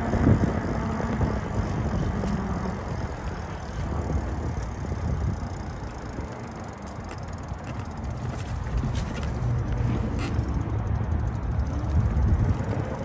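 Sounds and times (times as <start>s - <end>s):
bike tyres rumbling on trail: 0.0s - 13.0s.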